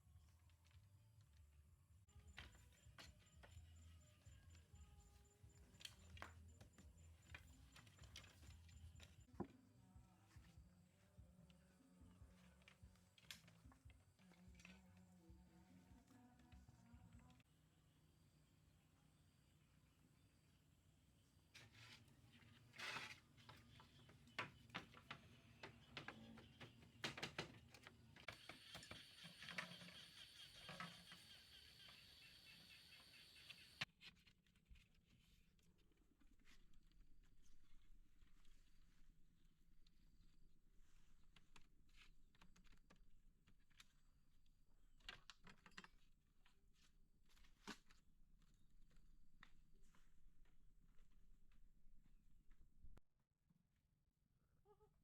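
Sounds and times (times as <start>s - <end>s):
faint irregular clicks and knocks: 22.8s - 32.0s, 41.2s - 48.6s.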